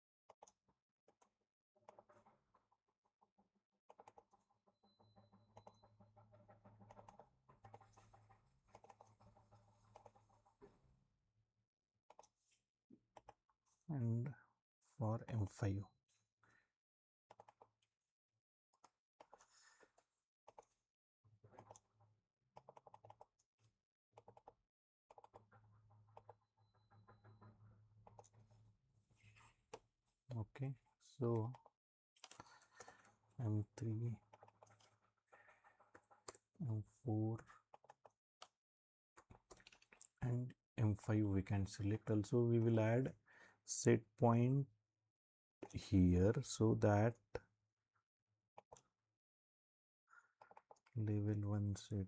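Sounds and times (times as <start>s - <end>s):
keyboard typing: 3.9s - 4.4s, 6.6s - 10.4s, 17.3s - 17.7s, 20.5s - 20.8s, 21.6s - 21.9s, 22.6s - 23.3s, 24.2s - 25.5s, 26.1s - 28.6s, 31.3s - 36.4s, 37.4s - 38.5s, 39.2s - 40.0s, 50.4s - 51.0s.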